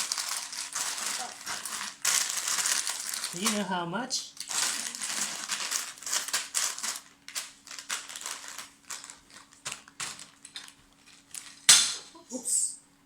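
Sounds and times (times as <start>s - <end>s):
plastic bags crinkling: 0.0s - 12.0s
faint steady hum: 0.0s - 13.0s.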